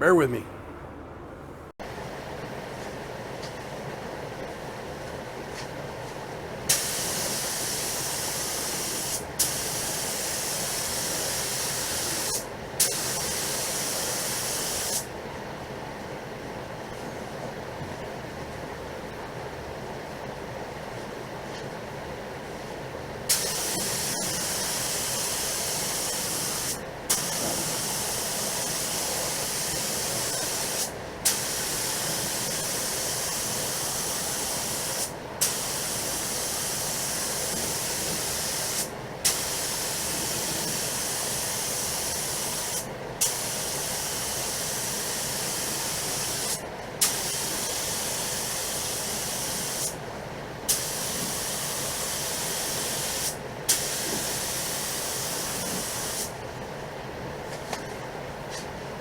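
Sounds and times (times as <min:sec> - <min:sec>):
spray gun air hiss: 0:06.7 - 0:15.0, 0:23.3 - 0:50.0, 0:50.7 - 0:56.4.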